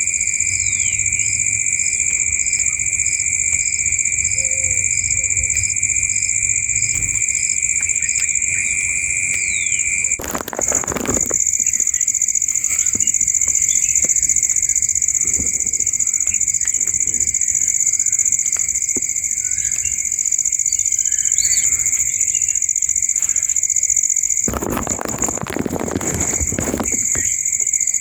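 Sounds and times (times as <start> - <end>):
insect chorus trilling: 0.0 - 28.0
faint chirps and clicks: 11.8 - 23.7.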